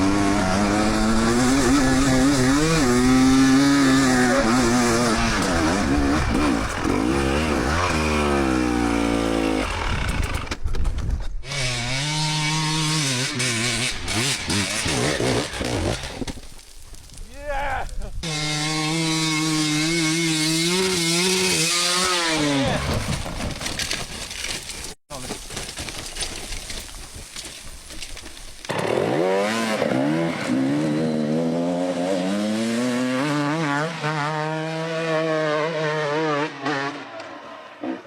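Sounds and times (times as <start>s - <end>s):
dirt bike engine revving: 0.0s - 10.5s, 11.4s - 16.3s, 18.2s - 23.0s, 28.7s - 38.0s.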